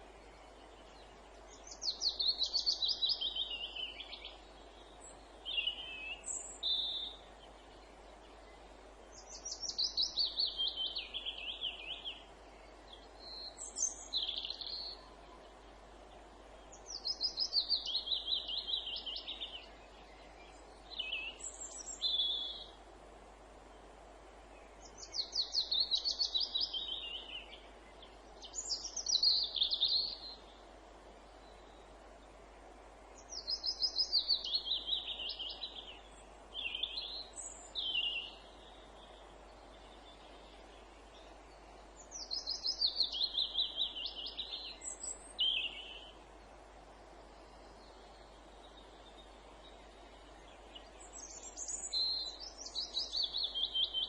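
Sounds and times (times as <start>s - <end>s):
faint woodland hiss: 0.0s - 54.0s
chaffinch singing: 24.8s - 30.6s, 33.2s - 46.2s, 47.4s - 54.0s.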